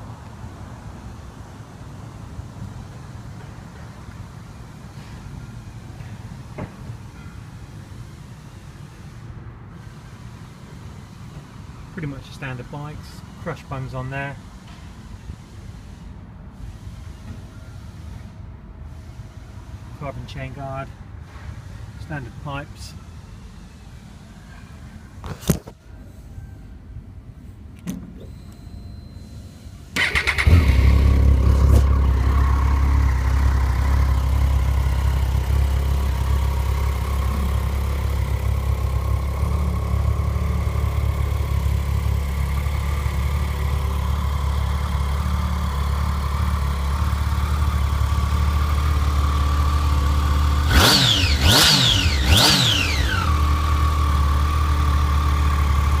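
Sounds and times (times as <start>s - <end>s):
motorcycle engine idling: 30.0s - 56.0s.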